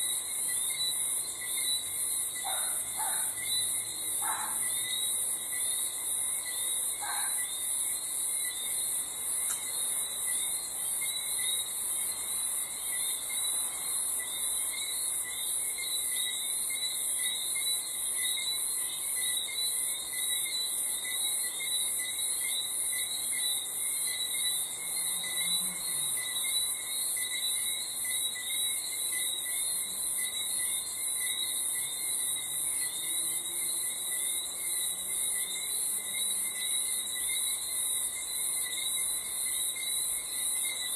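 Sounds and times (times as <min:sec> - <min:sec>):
crickets chirping: 0:00.0 - 0:40.9
lower insect or frog trills: 0:12.9 - 0:40.9.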